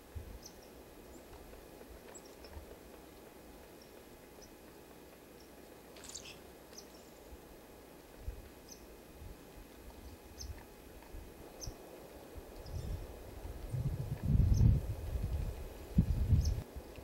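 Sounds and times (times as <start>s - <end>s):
small birds chirping: 0.3s - 7.3s, 8.6s - 9.0s, 9.9s - 10.7s, 11.5s - 14.8s, 16.1s - 16.7s.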